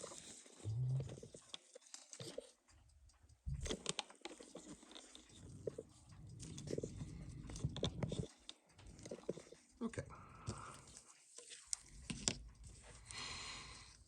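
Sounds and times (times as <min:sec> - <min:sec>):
small tools clicking and tapping: 0:00.0 - 0:14.0.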